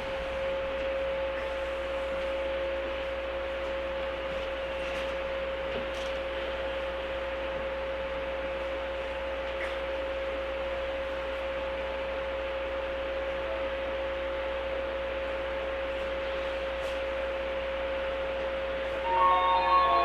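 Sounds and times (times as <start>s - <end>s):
constant humming tone: 18.5s - 20.0s.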